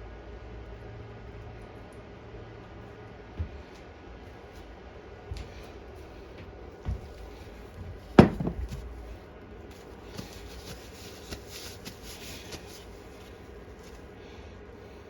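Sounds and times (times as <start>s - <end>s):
sharp knock of object set down: 8.2s - 8.8s.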